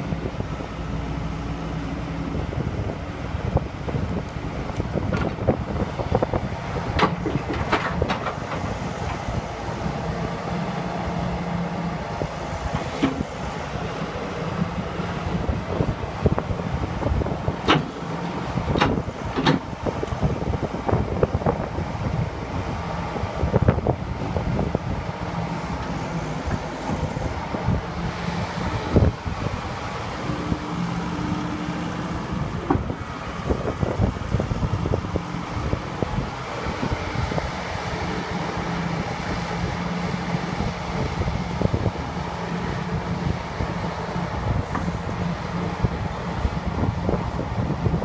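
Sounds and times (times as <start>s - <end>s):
diesel engine running: 0.0s - 48.0s.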